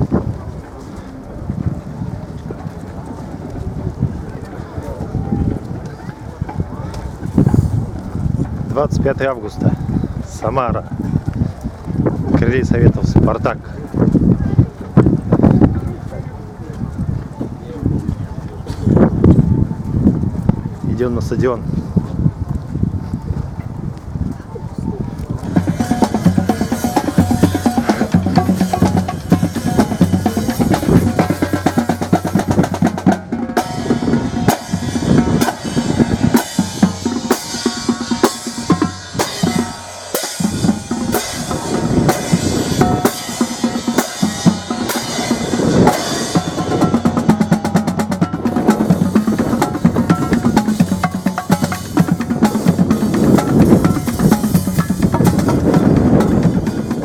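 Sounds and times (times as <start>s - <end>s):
bass line: 25.4s - 57.0s
music with heavy drumming: 25.4s - 57.0s.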